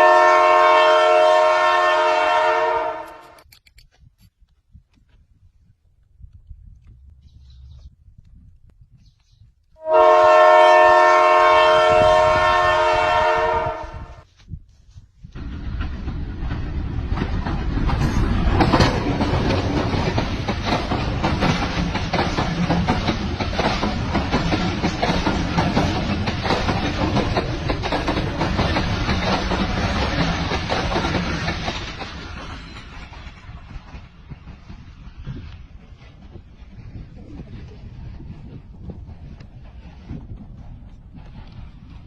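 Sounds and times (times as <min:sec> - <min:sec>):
train passing rumble: 0:00.0 - 0:03.3, 0:09.8 - 0:14.4, 0:15.2 - 0:42.0
train horn blast: 0:00.0 - 0:03.4, 0:09.8 - 0:14.2
wheels clattering over rail joints: 0:15.4 - 0:36.4.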